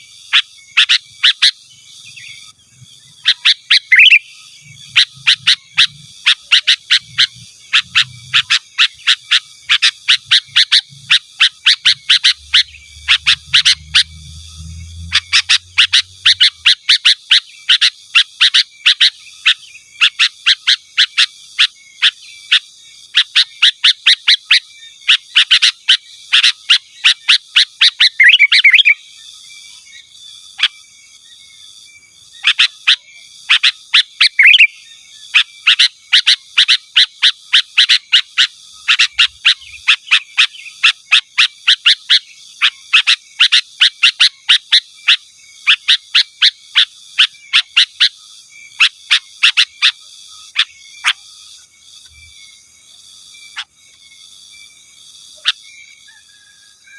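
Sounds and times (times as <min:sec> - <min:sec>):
bulbul chirping: 0:03.3 - 0:18.4, 0:28.1 - 0:29.0, 0:34.0 - 0:41.1.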